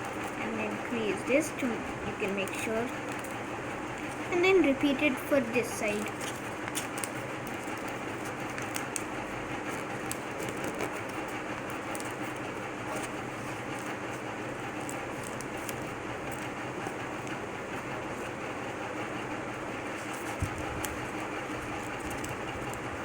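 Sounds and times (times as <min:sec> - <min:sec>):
paper crackles: 0:00.0 - 0:18.4, 0:19.7 - 0:23.0
faint hum: 0:00.0 - 0:23.0
steady rumbling background noise: 0:00.0 - 0:23.0
paper being folded and creased: 0:02.2 - 0:18.4, 0:19.8 - 0:23.0.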